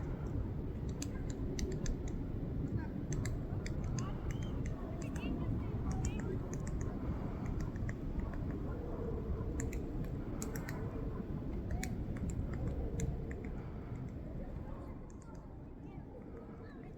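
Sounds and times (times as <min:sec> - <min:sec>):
woodpecker pecking at tree trunk: 0:00.8 - 0:02.2, 0:05.9 - 0:08.6, 0:09.5 - 0:10.8, 0:11.6 - 0:14.1.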